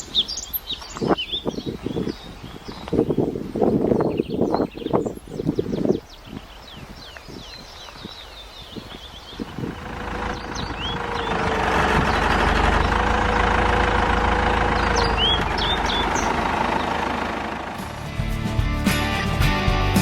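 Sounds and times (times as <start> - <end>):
birds chirping: 0.0 - 18.0
diesel engine running: 9.4 - 18.6.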